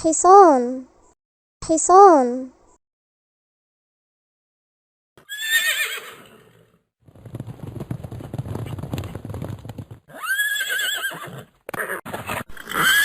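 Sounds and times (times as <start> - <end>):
horse whinnying: 5.2 - 6.8, 8.5 - 13.0
rapid hoofbeats: 7.0 - 12.5.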